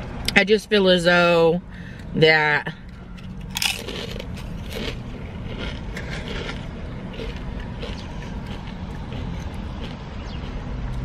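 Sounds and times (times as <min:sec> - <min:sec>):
low hum: 0:01.6 - 0:11.0
crunchy food being chewed: 0:02.8 - 0:11.0.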